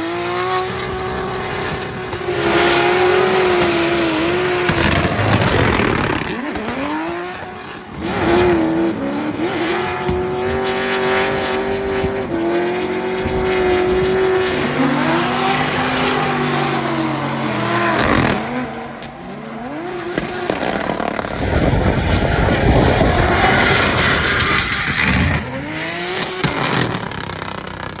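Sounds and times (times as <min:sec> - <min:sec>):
car engine revving hard: 0:00.0 - 0:28.0.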